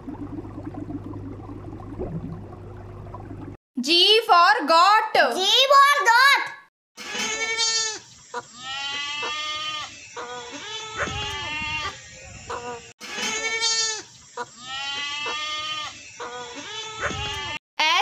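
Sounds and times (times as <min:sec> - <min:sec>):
goat bleating: 0:07.0 - 0:17.6.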